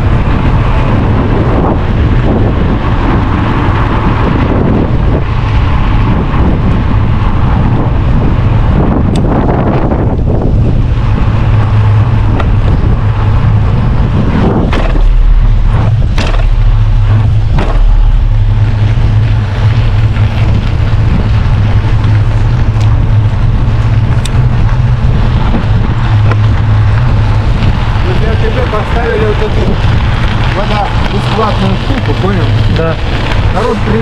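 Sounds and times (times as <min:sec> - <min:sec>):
bicycle riding noise: 0:00.0 - 0:34.0
wind rumbling on microphone: 0:00.0 - 0:34.0
sharp knocks: 0:14.7 - 0:15.2, 0:15.9 - 0:16.7, 0:17.5 - 0:18.1.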